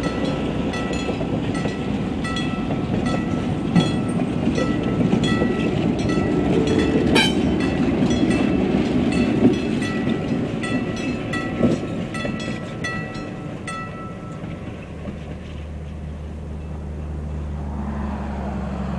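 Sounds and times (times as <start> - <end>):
crossing bell ringing: 0.0 - 14.8
train wheels clacking on rails: 0.0 - 17.1.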